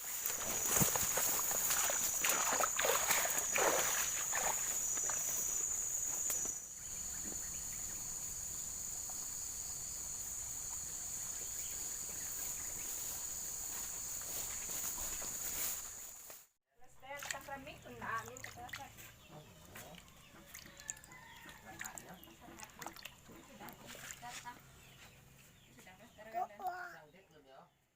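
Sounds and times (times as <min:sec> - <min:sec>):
swishing through water or brush: 0:00.0 - 0:06.6, 0:18.2 - 0:24.6
high-pitched insect drone: 0:00.2 - 0:16.2.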